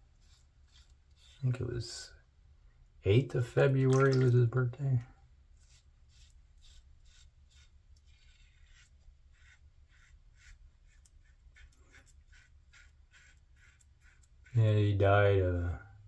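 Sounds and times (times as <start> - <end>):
razor scratching while shaving: 0.0 - 2.0, 5.6 - 14.8.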